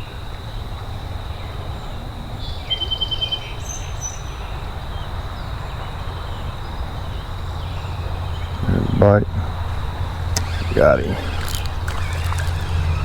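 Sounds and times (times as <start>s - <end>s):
bird chirping trills: 7.2s - 13.0s
high insect-like whine: 7.3s - 13.0s.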